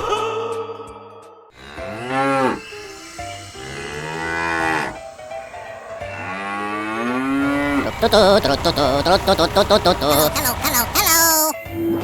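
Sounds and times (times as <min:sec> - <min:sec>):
cow mooing: 0:01.6 - 0:02.6, 0:03.7 - 0:05.0, 0:06.0 - 0:10.3.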